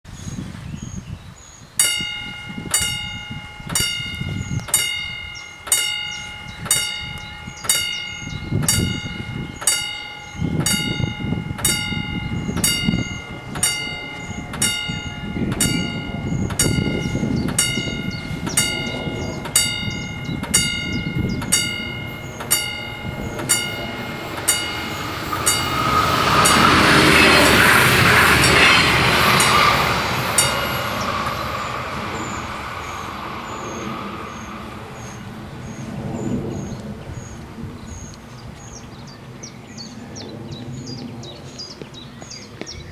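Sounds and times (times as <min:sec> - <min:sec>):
diesel train rumbling past: 0:01.7 - 0:41.8
level crossing bells ringing: 0:01.8 - 0:35.2.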